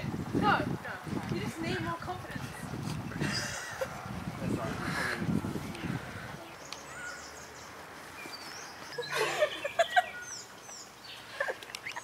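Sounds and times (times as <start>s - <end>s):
birds calling and chirping: 2.4s - 12.0s.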